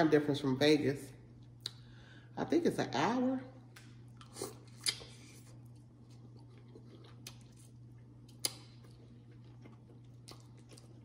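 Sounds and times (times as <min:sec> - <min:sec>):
close-up chewing: 0:04.1 - 0:11.0.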